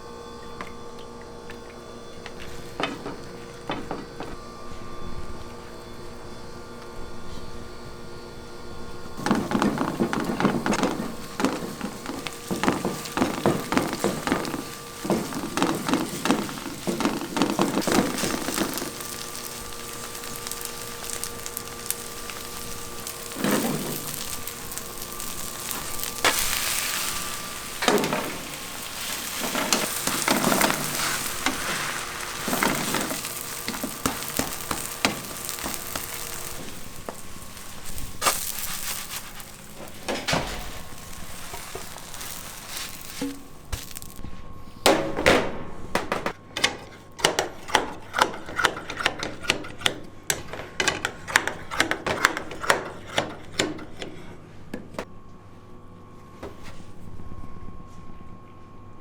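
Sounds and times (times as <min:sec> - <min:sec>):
food sizzling in a pot: 0:09.1 - 0:44.2
stirring and scraping a pot: 0:09.2 - 0:44.2, 0:46.8 - 0:54.4.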